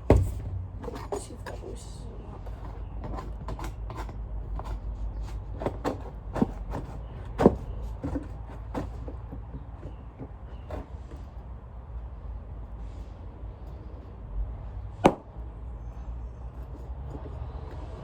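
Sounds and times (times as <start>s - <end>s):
low steady hum: 0.0s - 3.7s.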